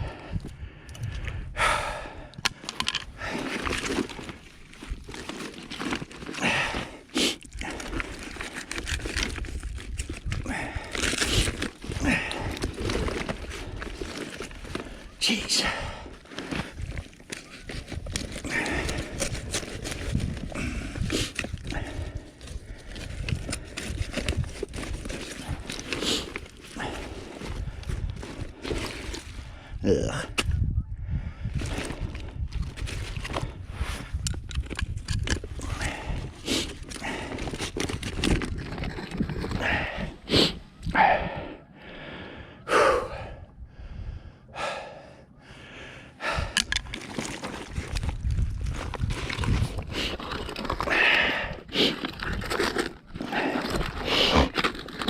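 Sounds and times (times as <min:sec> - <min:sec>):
man breathing hard: 0:00.0 - 0:04.3, 0:06.3 - 0:09.0, 0:10.3 - 0:17.0, 0:17.8 - 0:30.4, 0:31.0 - 0:32.5, 0:35.6 - 0:37.8, 0:39.5 - 0:47.6, 0:49.2 - 0:54.6.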